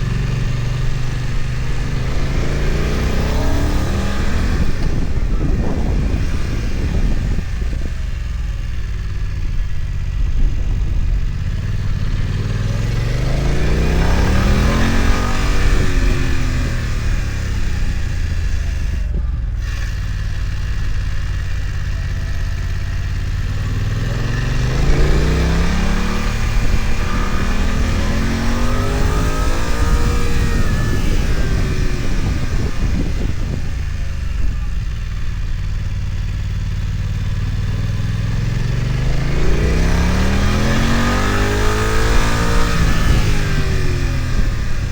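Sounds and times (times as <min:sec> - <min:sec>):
motorcycle engine pulling hard: 0:00.0 - 0:44.9.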